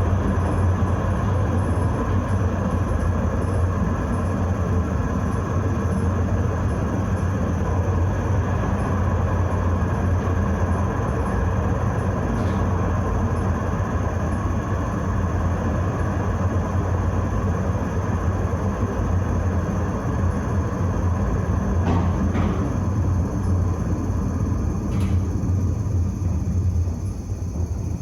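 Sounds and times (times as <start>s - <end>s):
tram rumble and hum: 0.0s - 28.0s.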